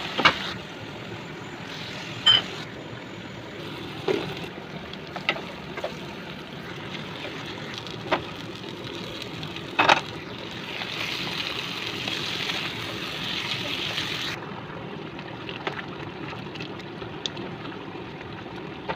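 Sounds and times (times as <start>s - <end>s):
food sizzling and bubbling in pan: 0.0s - 18.9s.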